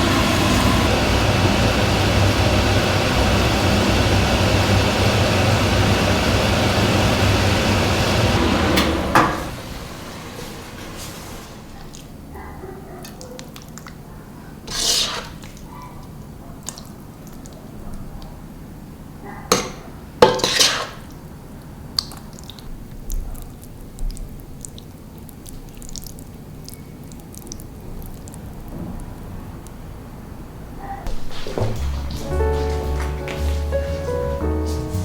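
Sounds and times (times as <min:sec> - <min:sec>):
dishes and utensils clinking: 0:31.1 - 0:35.0.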